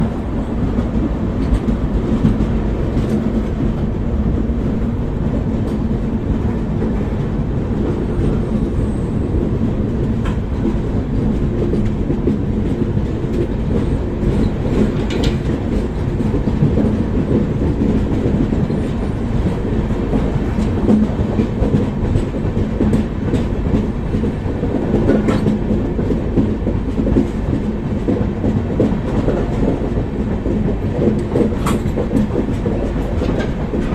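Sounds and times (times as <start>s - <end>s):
train wheels clattering on rails: 0.0s - 33.9s.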